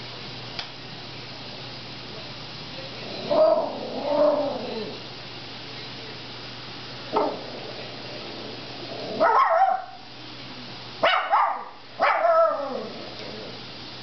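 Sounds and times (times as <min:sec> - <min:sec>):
dog barking: 0:09.2 - 0:10.1, 0:11.0 - 0:12.6.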